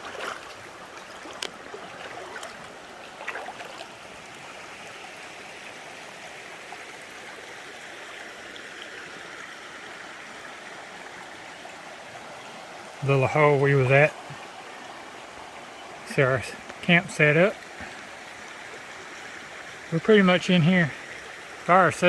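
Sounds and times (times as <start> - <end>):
knocks or splashes: 0.0 - 3.9
creek flowing over rocks: 0.0 - 22.0.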